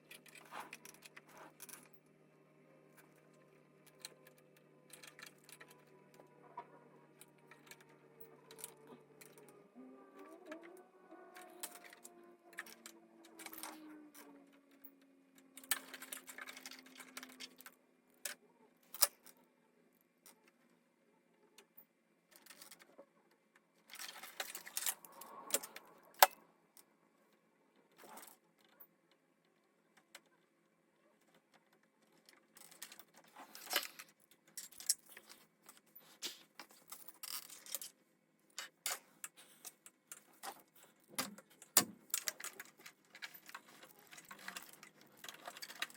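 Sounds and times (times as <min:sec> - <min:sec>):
rustling and light clattering: 0:00.0 - 0:02.1, 0:31.1 - 0:45.9.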